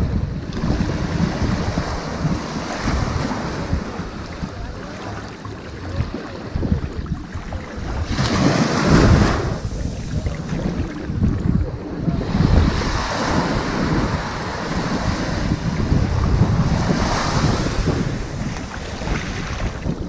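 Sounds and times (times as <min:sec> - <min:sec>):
ocean waves on sandy beach: 0:00.0 - 0:20.0.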